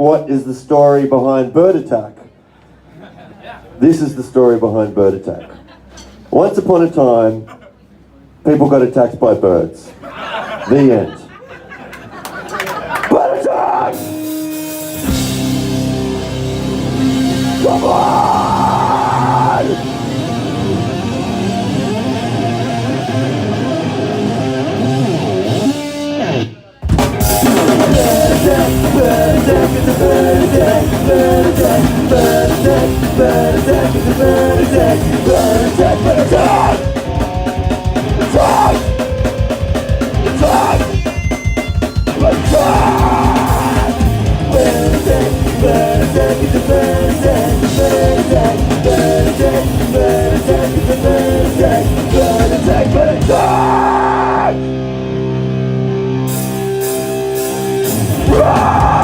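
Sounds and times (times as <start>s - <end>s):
distorted electric guitars: 13.6s - 59.0s
fast drums: 14.0s - 20.8s, 26.8s - 54.5s, 57.4s - 59.0s
person shouting singing: 17.5s - 19.9s, 27.6s - 41.1s, 42.1s - 54.7s, 58.2s - 59.0s.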